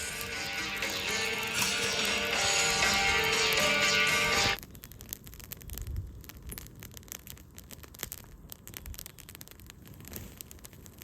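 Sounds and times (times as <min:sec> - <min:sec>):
song: 0:00.0 - 0:04.6
wood fire crackling and popping: 0:00.0 - 0:11.0.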